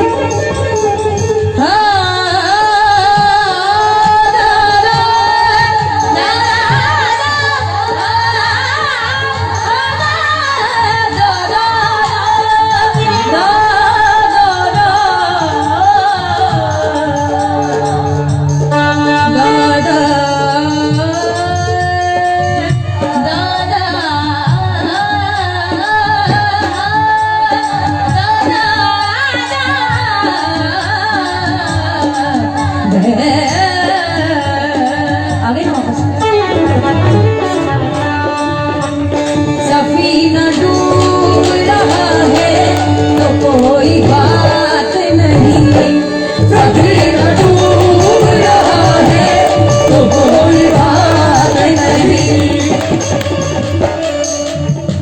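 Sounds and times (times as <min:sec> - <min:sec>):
person singing devotional song: 0:00.0 - 0:55.0
instrumental drone accompaniment: 0:36.9 - 0:55.0.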